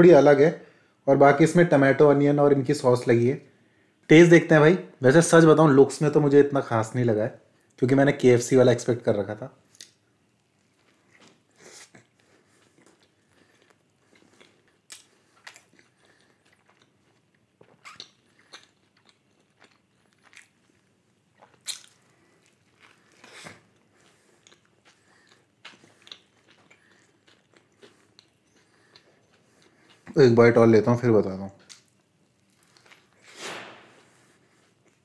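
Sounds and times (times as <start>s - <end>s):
person chewing: 9.7s - 30.2s, 31.6s - 33.3s, 34.0s - 35.0s
mouth clicks and smacks: 11.2s - 20.6s, 21.4s - 22.0s.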